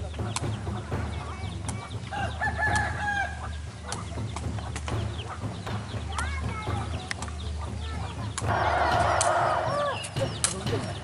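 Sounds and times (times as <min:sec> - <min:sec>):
rooster crowing: 0:08.5 - 0:10.0.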